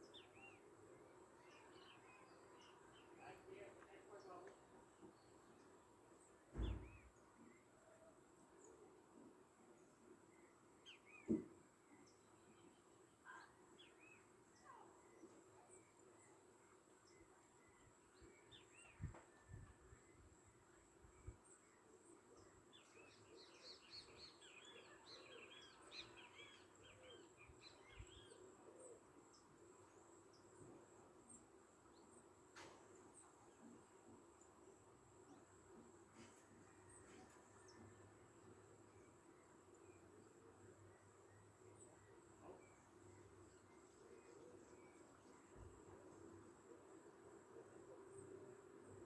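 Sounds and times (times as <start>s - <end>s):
faint birdsong: 0.0s - 49.0s
low thump: 6.5s - 7.0s.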